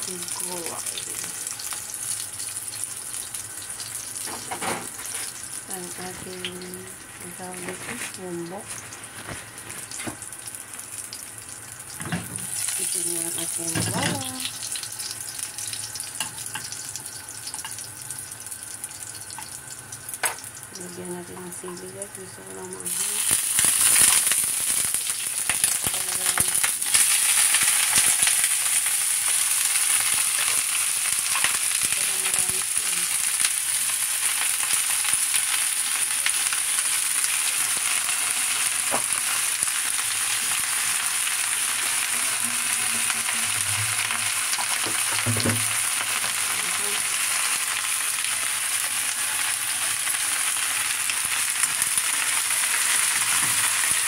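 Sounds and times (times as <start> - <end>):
vegetables sizzling in hot oil: 0.0 - 54.0.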